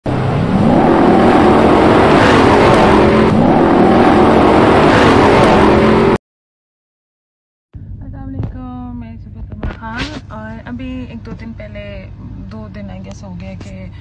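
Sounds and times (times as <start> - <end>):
rally car engine revving: 0.1 - 6.2.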